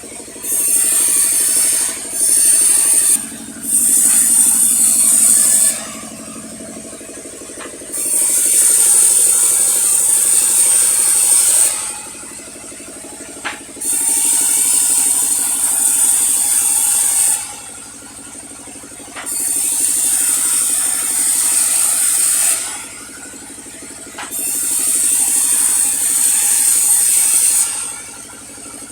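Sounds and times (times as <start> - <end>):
machinery rattling: 0.0 - 17.6
saw cutting through log: 0.0 - 28.9.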